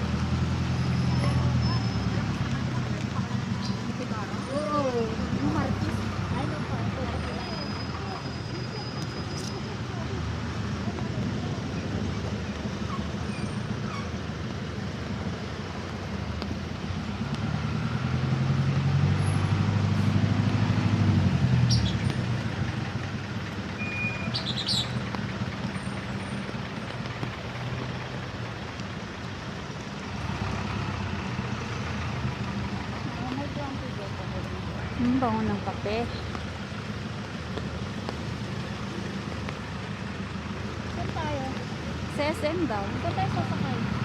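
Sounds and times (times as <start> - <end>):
vehicle engines running: 0.0 - 44.0
vehicle passing close: 10.0 - 29.0, 29.9 - 44.0.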